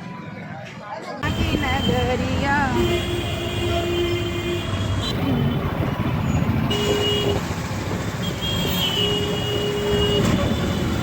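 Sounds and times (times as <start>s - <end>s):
vehicle horn: 1.2s - 5.2s, 6.6s - 7.4s, 8.2s - 11.0s
traffic rumble: 1.2s - 11.0s.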